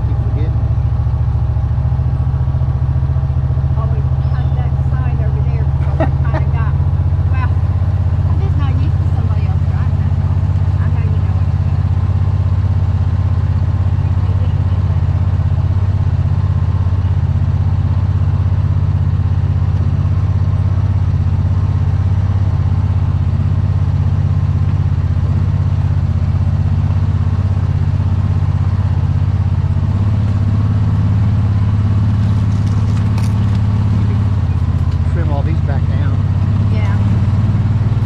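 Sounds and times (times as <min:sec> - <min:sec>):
small engine humming: 0:00.0 - 0:38.0.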